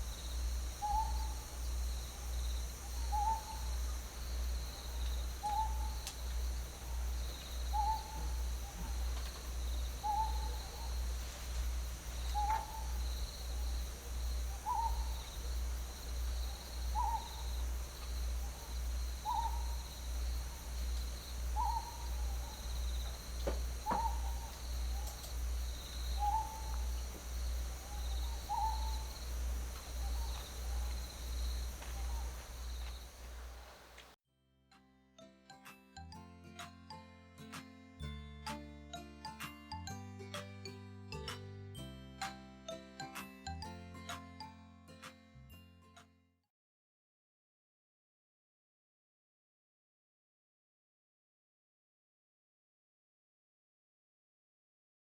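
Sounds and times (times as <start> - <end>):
low pulsing hum: 0.0 - 34.0
owl hooting: 0.0 - 34.1
insect chirring: 0.0 - 34.2.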